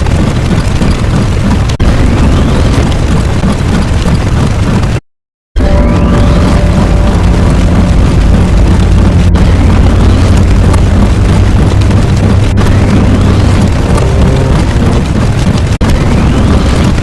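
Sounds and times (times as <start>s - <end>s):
rising sweeps: 5.6s - 15.2s
explosion sound effects: 5.6s - 17.0s
low rumble: 5.6s - 17.0s.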